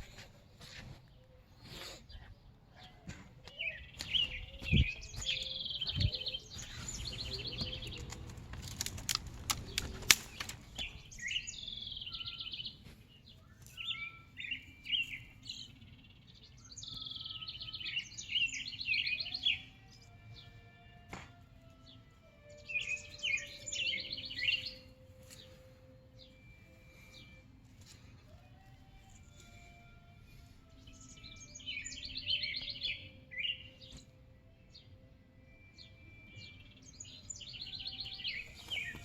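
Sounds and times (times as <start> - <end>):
small bird chirping: 3.5 - 15.4
sharp clicks: 7.0 - 11.0.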